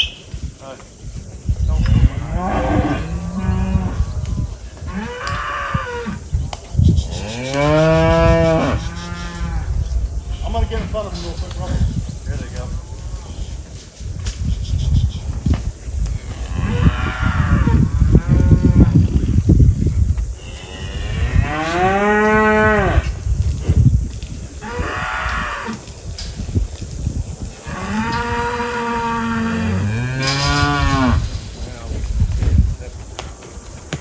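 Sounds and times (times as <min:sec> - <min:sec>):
cattle mooing: 0:27.7 - 0:31.2.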